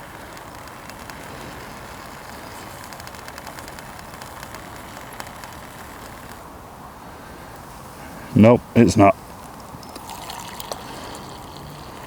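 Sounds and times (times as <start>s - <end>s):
faint crackles: 0.0s - 6.6s
water boiling: 9.4s - 12.0s.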